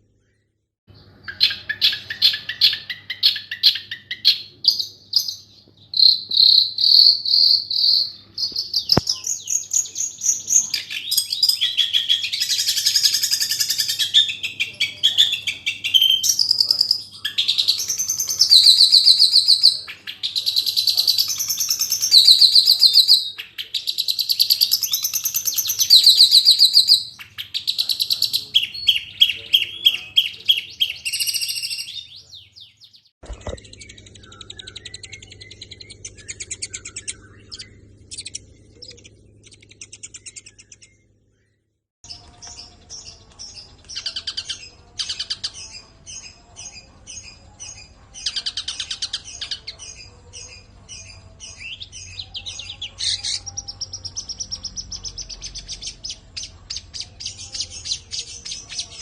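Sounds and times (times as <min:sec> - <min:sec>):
shrike singing trills and chirps: 0:00.2 - 0:59.0.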